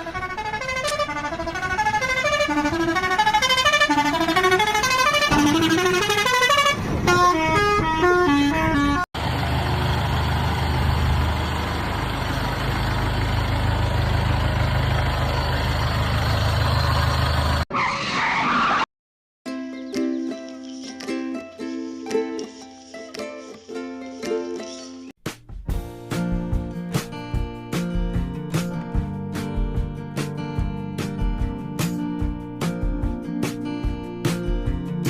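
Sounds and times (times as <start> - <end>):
vehicle engine rumbling: 0.0 - 17.7
plucked string music: 19.5 - 35.0.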